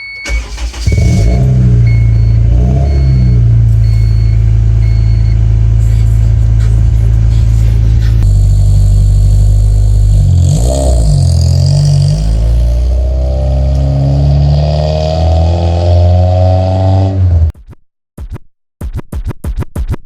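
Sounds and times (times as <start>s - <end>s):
car engine revving and accelerating: 0.7s - 17.5s.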